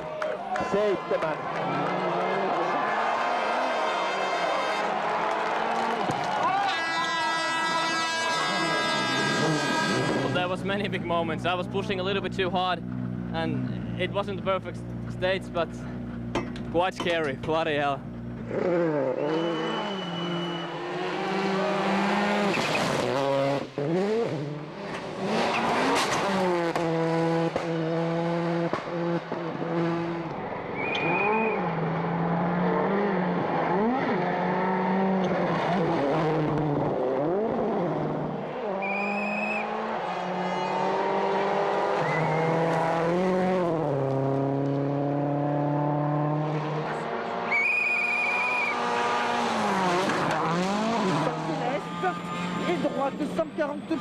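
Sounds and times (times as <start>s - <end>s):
tyre squeal: 6.9s - 10.4s, 18.9s - 20.8s, 30.8s - 31.7s, 38.8s - 39.8s, 47.5s - 48.8s
rally car engine revving: 6.9s - 54.0s.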